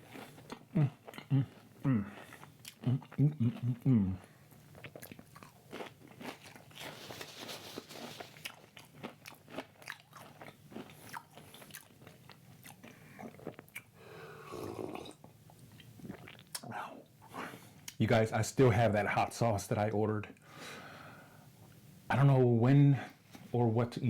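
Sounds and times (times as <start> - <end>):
person crunching crisp food: 0.1 - 3.8, 4.6 - 13.9.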